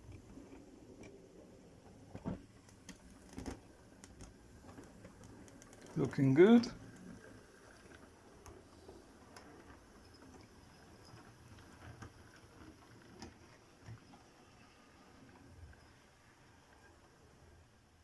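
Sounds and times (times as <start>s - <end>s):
model train wheels clicking: 2.6s - 18.0s.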